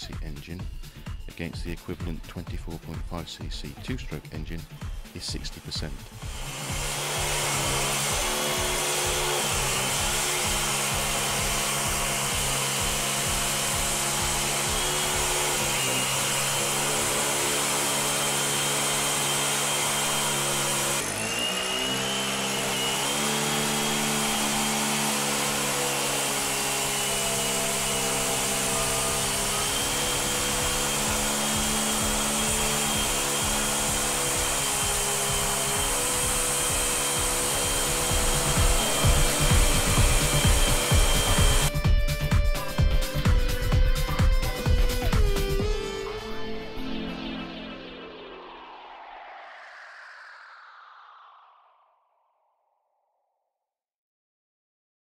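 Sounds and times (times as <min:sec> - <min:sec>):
small engine running: 0:04.6 - 0:46.0.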